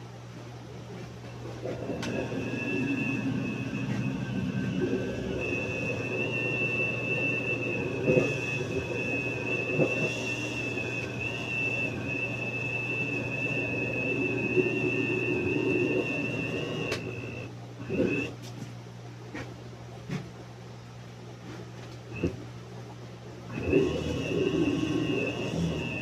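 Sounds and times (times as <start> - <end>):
blender motor whining: 1.7 - 18.4, 23.5 - 26.0.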